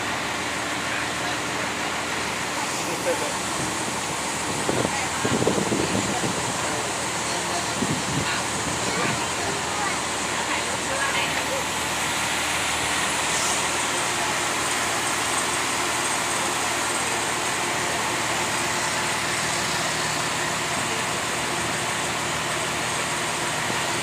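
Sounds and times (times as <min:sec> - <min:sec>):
boat engine running: 0:00.0 - 0:24.0
water rushing: 0:00.0 - 0:24.0
wind noise: 0:04.5 - 0:06.5.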